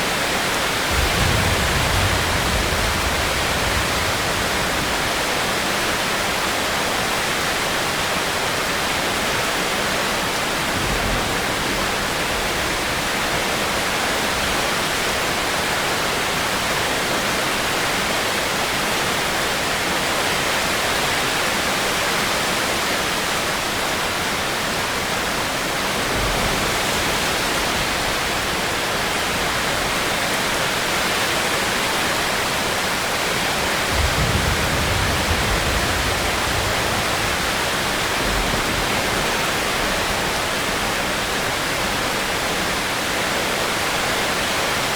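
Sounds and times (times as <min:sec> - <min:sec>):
steady rain: 0:00.0 - 0:44.9
low thunder rumbles: 0:00.7 - 0:06.4, 0:33.6 - 0:41.2.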